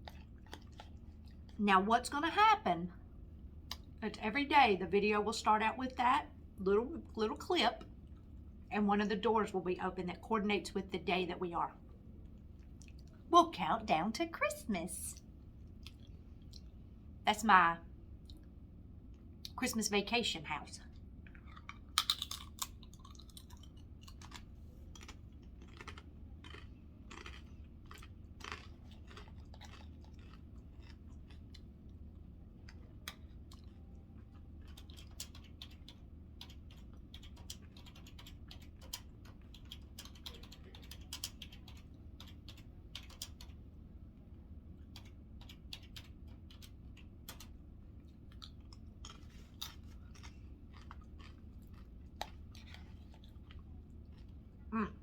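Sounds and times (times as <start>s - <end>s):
person chewing food: 0.0s - 1.6s, 12.2s - 13.3s, 15.2s - 16.9s, 20.9s - 43.5s, 47.9s - 54.7s
steady low hum: 0.0s - 55.0s.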